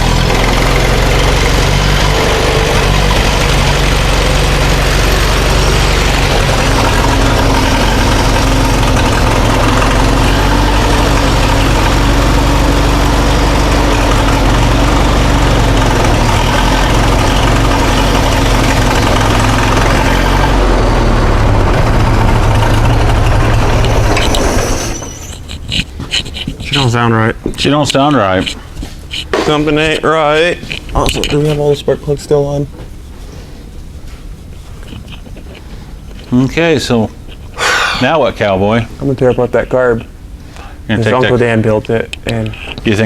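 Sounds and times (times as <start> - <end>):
tractor engine idling: 0.0 - 32.6.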